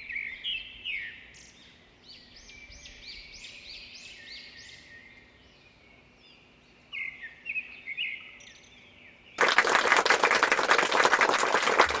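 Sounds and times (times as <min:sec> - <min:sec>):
applause: 0:09.4 - 0:12.0.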